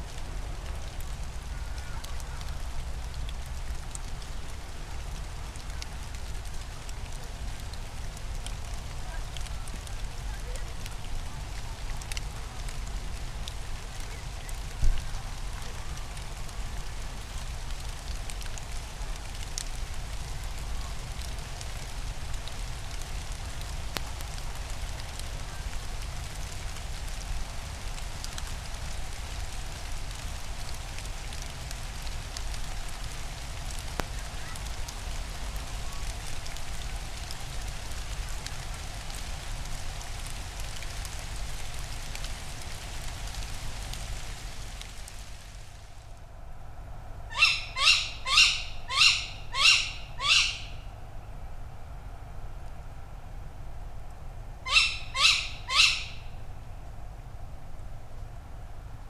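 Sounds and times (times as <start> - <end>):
steady rain falling: 0.0 - 59.0
owl calling: 47.3 - 50.9, 54.6 - 56.4.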